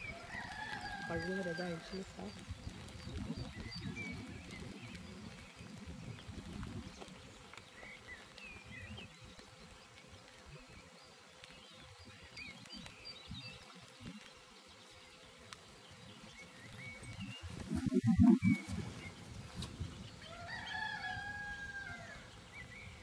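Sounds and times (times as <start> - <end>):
faint small birds chirping: 0.0 - 23.0
low wind rumble: 17.0 - 20.3.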